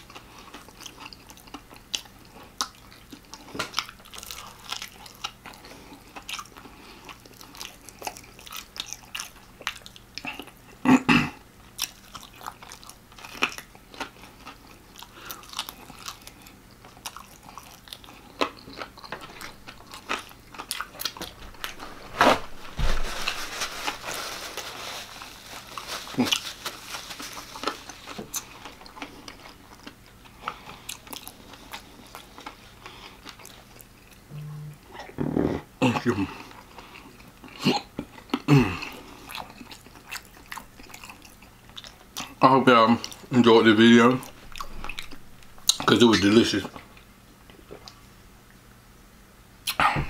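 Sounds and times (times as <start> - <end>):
crunchy chewing: 0.0 - 10.8, 11.6 - 22.5, 23.1 - 34.2, 36.0 - 42.4, 44.1 - 48.0
paper napkin rustling: 21.2 - 28.2.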